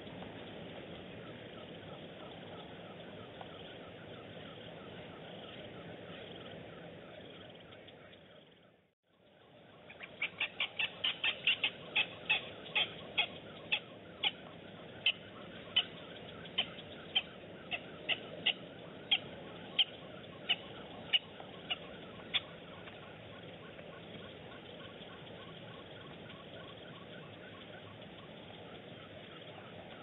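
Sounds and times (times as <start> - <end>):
bird calling sharp notes: 9.8 - 27.5.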